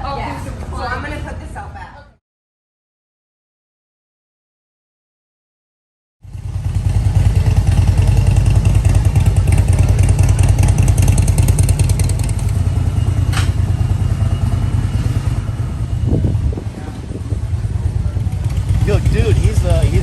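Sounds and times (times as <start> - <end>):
motorcycle engine running: 6.2 - 20.0.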